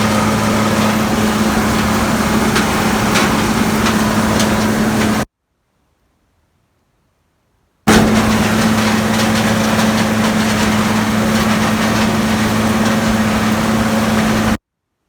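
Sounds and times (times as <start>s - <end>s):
combine engine and threshing machinery: 0.0s - 5.3s, 7.9s - 14.6s.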